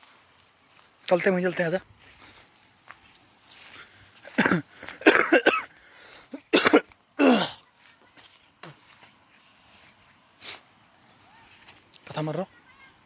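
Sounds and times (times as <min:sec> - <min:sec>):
person coughing: 0:04.3 - 0:05.7, 0:06.4 - 0:07.6.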